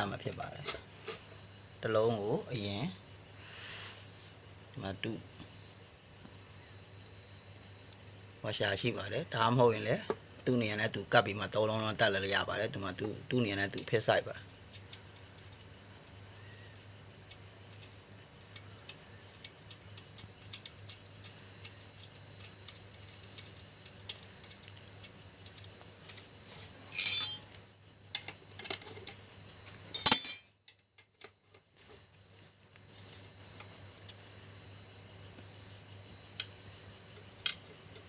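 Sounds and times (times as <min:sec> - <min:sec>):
low steady hum: 0:00.0 - 0:38.0
small metal parts clinking: 0:26.8 - 0:27.6, 0:29.9 - 0:30.8.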